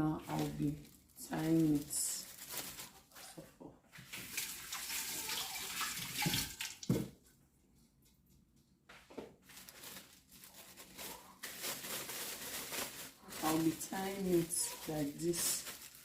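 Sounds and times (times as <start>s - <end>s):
water running into a sink: 4.1s - 7.0s.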